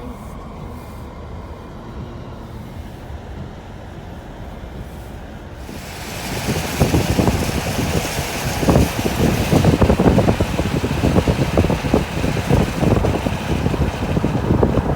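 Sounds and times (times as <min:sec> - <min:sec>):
car rumbling along road: 0:00.0 - 0:14.9
wind buffeting microphone: 0:05.5 - 0:14.9.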